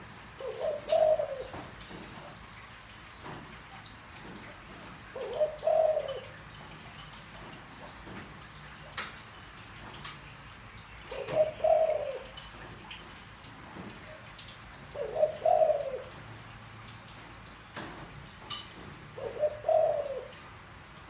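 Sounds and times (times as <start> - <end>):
dove cooing: 0.0 - 2.4, 4.2 - 6.6, 11.0 - 12.7, 13.8 - 16.5, 18.9 - 20.6.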